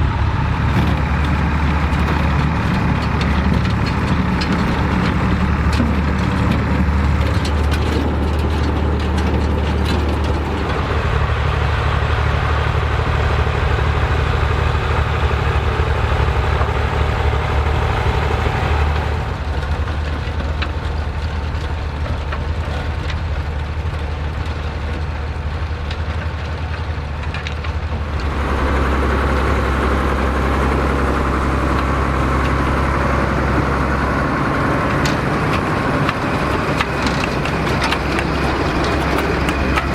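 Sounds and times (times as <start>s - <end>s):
tractor engine running: 0.0s - 39.9s
machinery clicks and knocks: 0.6s - 11.2s, 18.7s - 39.9s.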